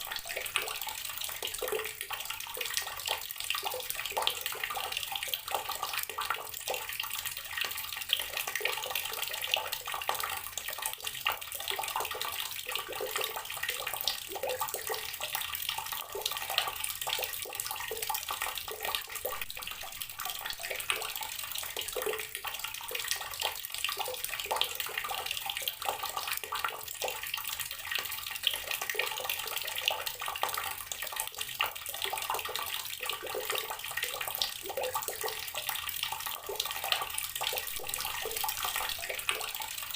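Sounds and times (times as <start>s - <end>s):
water tap running: 37.4s - 39.9s.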